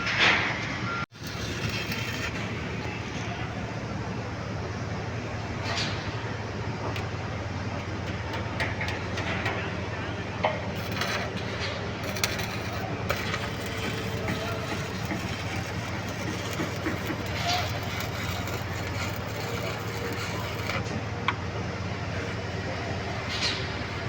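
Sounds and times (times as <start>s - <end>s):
welding arc crackling: 1.1s - 3.2s, 10.7s - 20.9s
steady low hum: 1.2s - 24.0s.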